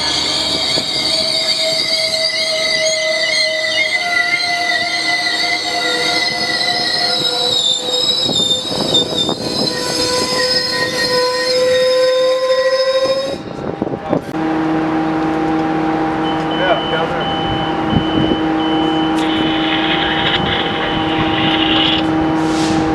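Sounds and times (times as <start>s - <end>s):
train wheels squealing: 0.0s - 13.6s.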